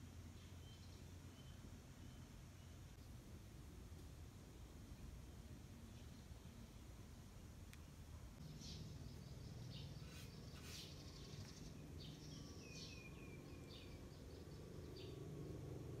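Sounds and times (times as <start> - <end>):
faint bird chirps: 0.3 - 3.0, 7.7 - 15.5.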